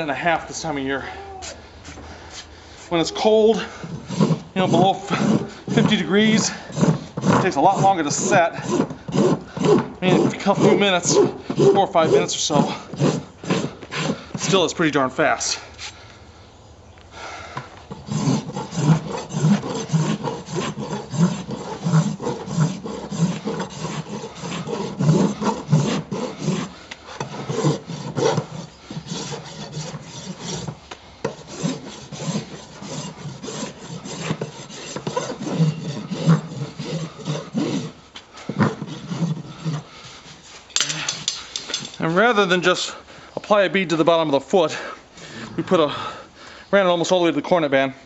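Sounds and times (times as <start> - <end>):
rasp scraping hoof: 1.8 - 14.8, 17.9 - 42.0.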